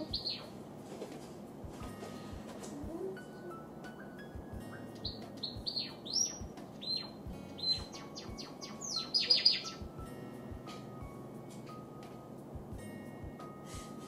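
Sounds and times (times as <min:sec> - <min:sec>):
sparrow chirping: 0:00.0 - 0:00.7, 0:03.6 - 0:11.5.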